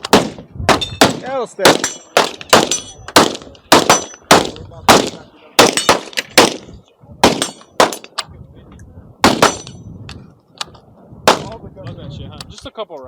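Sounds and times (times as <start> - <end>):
rapid gunshots: 0.1 - 8.0.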